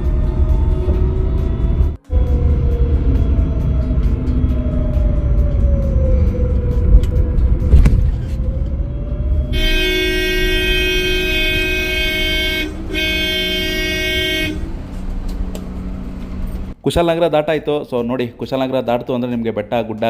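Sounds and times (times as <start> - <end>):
road rumble: 0.0 - 16.9
vehicle horn sounding: 9.5 - 14.8.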